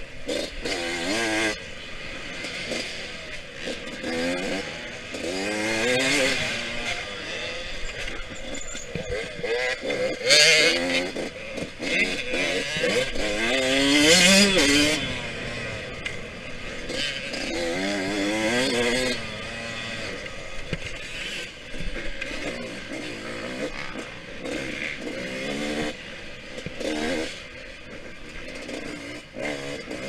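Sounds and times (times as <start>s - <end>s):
two-stroke dirt bike engine revving: 0.0s - 30.0s.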